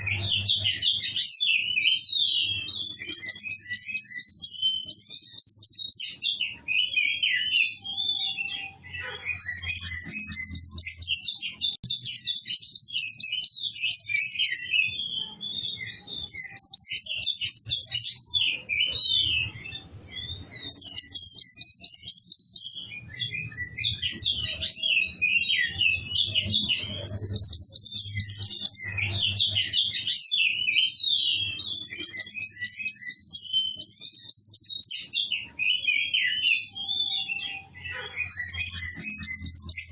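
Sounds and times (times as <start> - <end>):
songbird trilling and chirping: 0.0 - 39.9.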